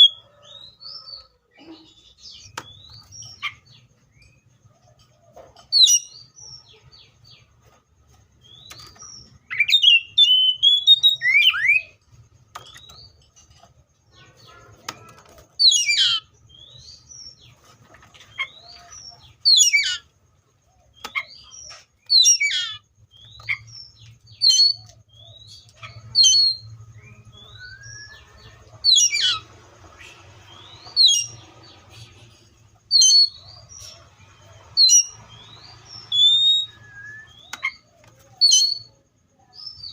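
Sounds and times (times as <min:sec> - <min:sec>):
bird singing whistled phrases: 0:09.5 - 0:12.0, 0:26.2 - 0:28.3, 0:34.8 - 0:38.9.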